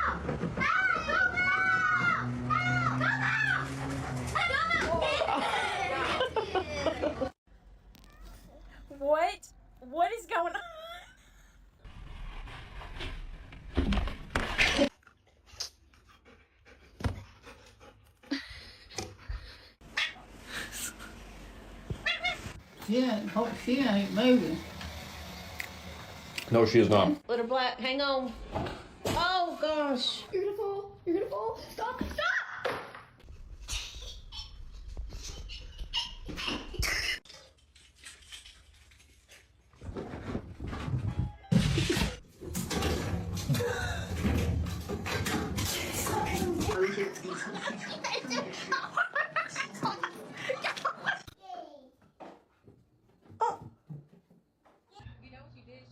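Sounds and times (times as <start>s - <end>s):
pet panting: 15.9s - 19.3s
pet noises: 22.0s - 22.6s.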